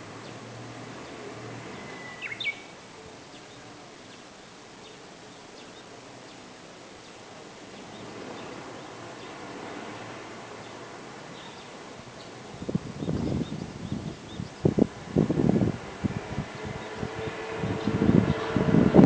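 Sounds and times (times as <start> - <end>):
outdoor background noise: 0.0 - 19.0
faint bird chirps: 1.7 - 6.4
bird whistling song phrase: 1.8 - 2.7.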